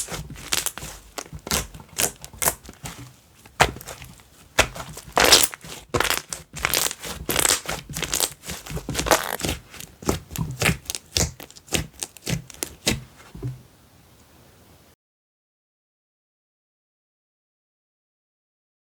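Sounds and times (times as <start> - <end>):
slime squished by hand: 0.0 - 13.4.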